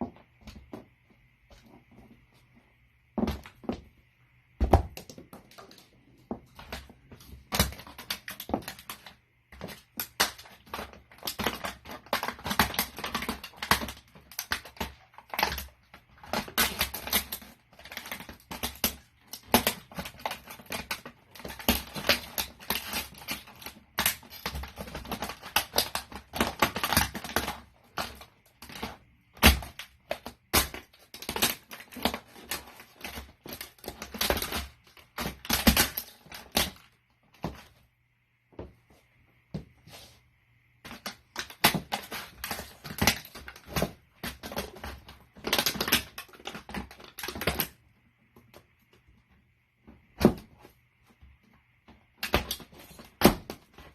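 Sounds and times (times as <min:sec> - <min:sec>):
plastic toy crunching under boot: 0:04.6 - 0:37.8, 0:40.8 - 0:47.8.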